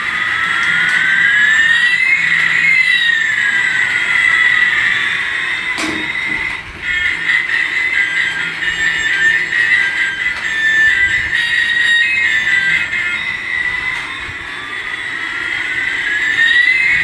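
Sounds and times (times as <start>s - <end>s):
electronic toy sweeping tones: 0.0s - 17.0s.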